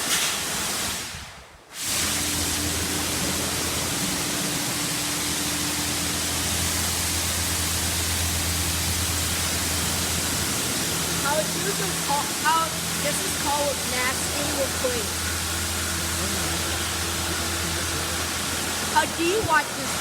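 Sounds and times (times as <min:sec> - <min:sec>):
water spray and brushes: 0:01.7 - 0:20.0
low machine hum: 0:02.2 - 0:20.0.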